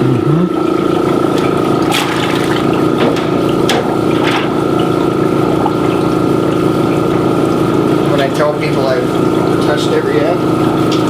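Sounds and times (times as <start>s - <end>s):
air bubbling through water: 0.0s - 7.0s
air compressor humming: 0.0s - 11.0s.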